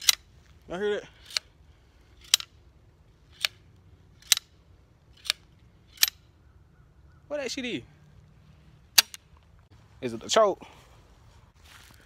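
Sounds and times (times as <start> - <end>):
sharp metallic clicks from shotgun: 0.0 - 0.3, 2.2 - 2.6, 3.3 - 3.6, 4.2 - 6.3, 8.9 - 9.3.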